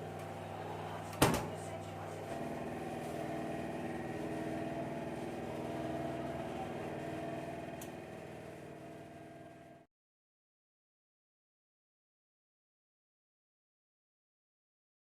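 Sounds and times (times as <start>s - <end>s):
vehicle engine humming: 2.3s - 9.8s.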